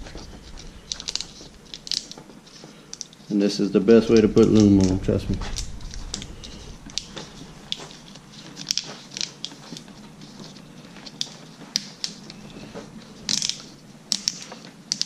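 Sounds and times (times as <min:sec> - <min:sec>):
plastic wire loom clicks and crinkles: 0:13.3 - 0:15.0.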